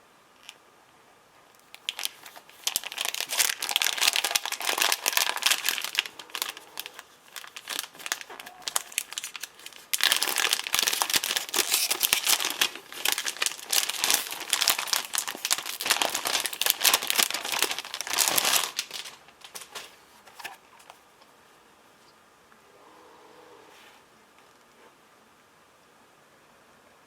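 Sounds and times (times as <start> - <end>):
crinkly material crumpling: 1.6 - 21.1.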